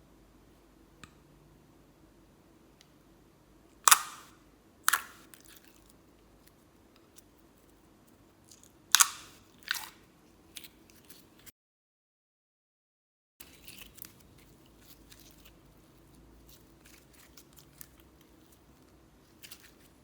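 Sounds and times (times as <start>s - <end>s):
slime crunching by hand: 3.8s - 7.4s, 8.1s - 11.5s, 13.4s - 20.0s.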